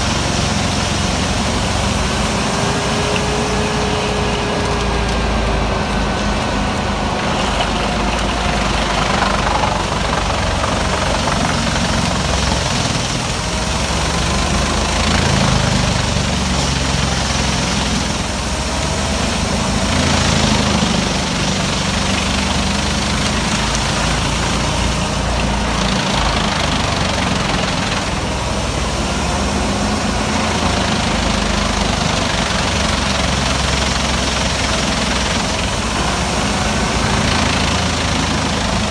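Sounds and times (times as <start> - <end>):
wood chipper engine running: 0.0 - 38.9.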